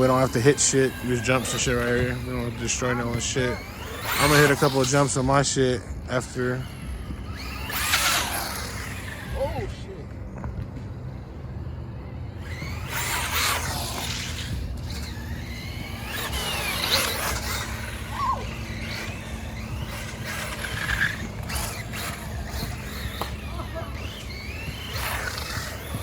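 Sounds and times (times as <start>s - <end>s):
rc truck motor whine: 0.0s - 26.0s
tyre squeal: 12.4s - 26.0s.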